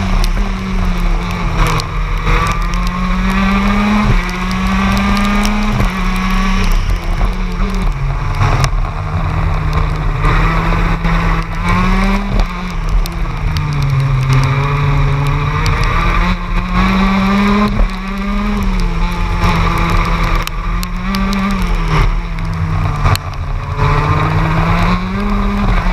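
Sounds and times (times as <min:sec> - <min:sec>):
kart engine revving: 0:00.0 - 0:25.9.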